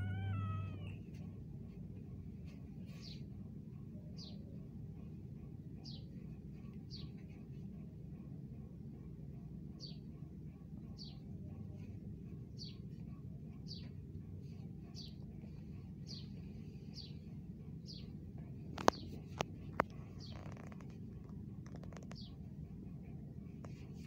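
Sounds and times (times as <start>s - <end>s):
small bird chirping: 0.0s - 1.0s, 19.8s - 21.0s, 21.7s - 22.4s
steady low hum: 0.0s - 24.0s.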